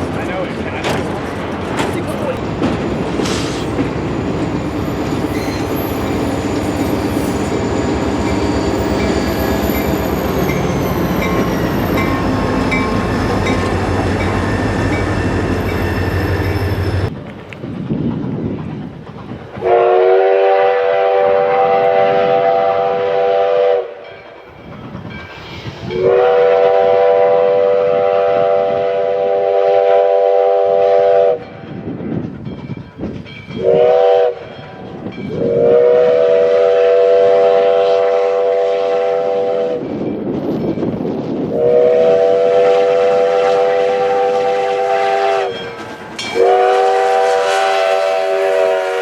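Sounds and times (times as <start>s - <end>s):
train running rumble: 0.0s - 49.0s
locomotive horn chime: 33.6s - 39.8s, 41.6s - 49.0s.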